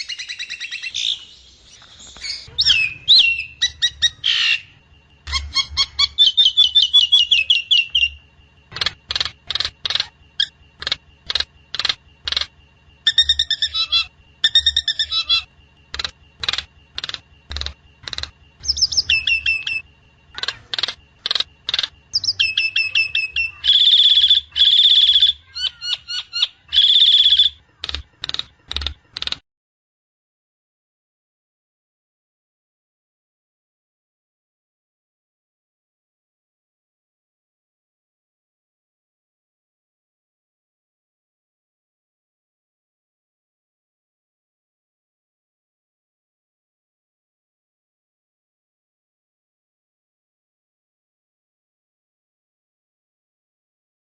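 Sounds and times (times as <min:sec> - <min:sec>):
myna whistles and chirps: 0:00.0 - 0:08.2, 0:13.1 - 0:15.5, 0:18.6 - 0:19.8, 0:22.1 - 0:27.6.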